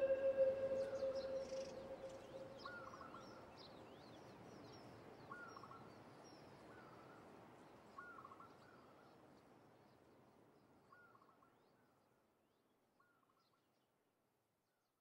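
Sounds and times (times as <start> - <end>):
birds chirping: 0.0 - 2.2
lower short bird call: 0.0 - 2.4.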